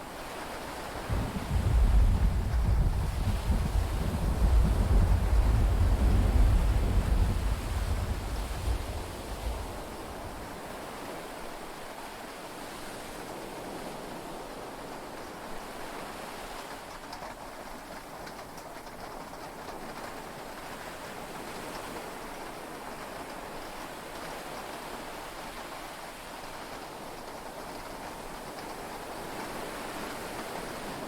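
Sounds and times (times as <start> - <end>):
rain and sea wash hiss: 0.0 - 31.0
low thunder rumble: 1.0 - 10.6.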